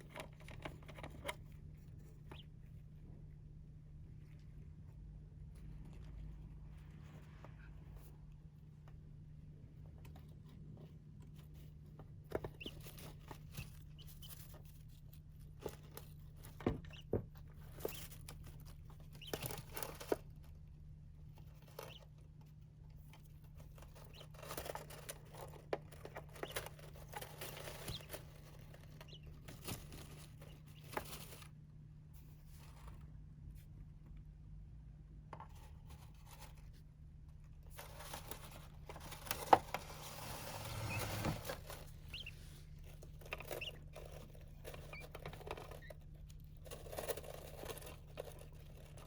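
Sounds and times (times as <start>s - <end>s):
birds scrabbling in sand: 19.1s - 20.0s, 26.2s - 31.4s, 39.7s - 42.5s, 43.2s - 46.0s.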